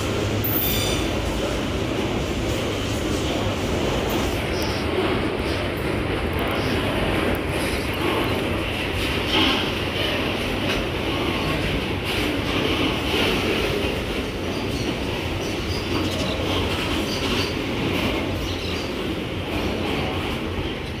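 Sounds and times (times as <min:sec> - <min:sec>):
steel wheels rumbling on rail: 0:00.0 - 0:21.0.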